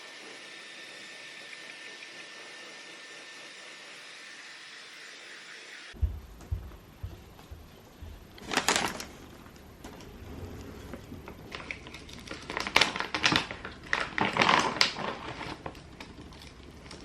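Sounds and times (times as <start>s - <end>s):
rapid clicking and rustling: 7.4s - 10.2s.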